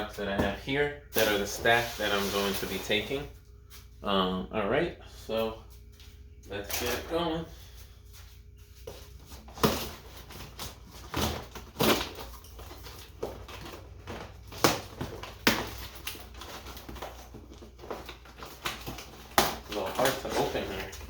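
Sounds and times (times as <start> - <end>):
packaging crinkling by hand: 10.0 - 21.0.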